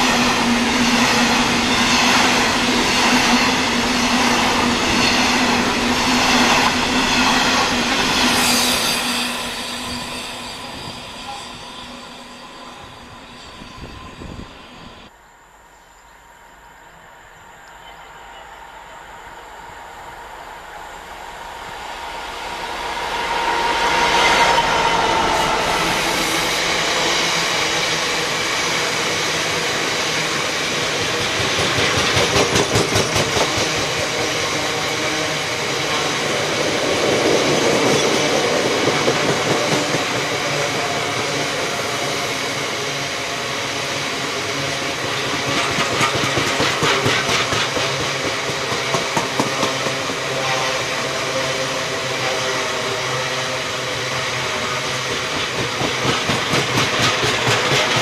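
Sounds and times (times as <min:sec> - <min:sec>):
freight train passing: 0:00.0 - 0:58.0
wheels clacking over rail joints: 0:45.0 - 0:50.3, 0:55.2 - 0:58.0.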